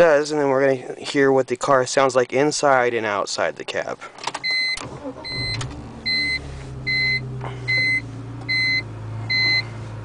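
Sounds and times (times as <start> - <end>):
dashboard warning chime beeps: 4.4 - 9.7
car engine idling: 4.8 - 10.0.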